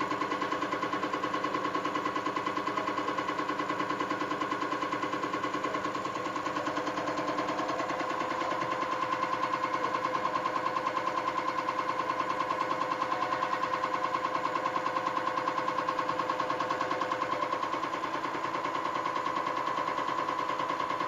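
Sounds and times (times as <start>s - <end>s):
rapid mechanical pulses: 0.0s - 21.0s
steady machine whine: 0.0s - 21.0s.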